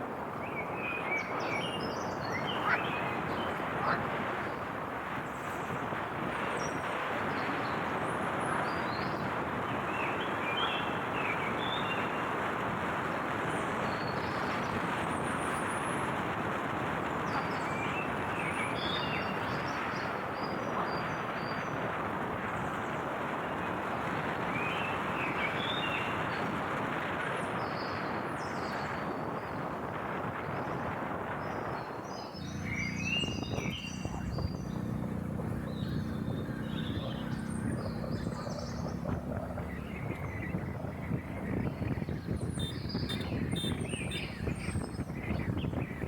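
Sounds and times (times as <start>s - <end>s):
rushing noise of moving vehicle: 0.0s - 46.0s
birds chirping: 0.3s - 12.4s, 24.5s - 26.4s, 31.4s - 46.0s.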